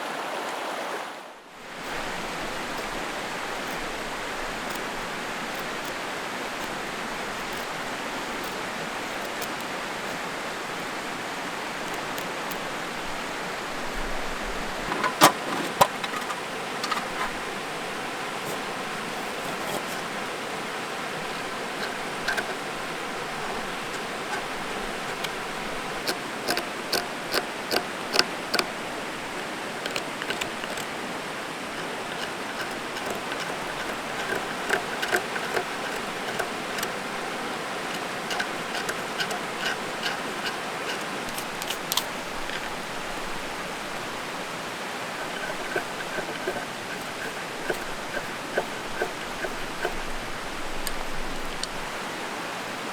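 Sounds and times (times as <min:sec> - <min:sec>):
stream rushing over rocks: 0:00.0 - 0:52.9
sharp clicks: 0:02.6 - 0:11.0, 0:21.4 - 0:42.8.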